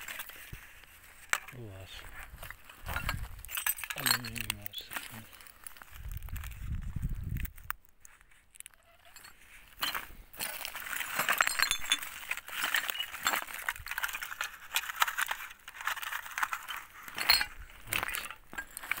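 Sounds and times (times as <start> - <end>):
scrap metal clinking: 1.2 - 5.5, 8.8 - 19.0.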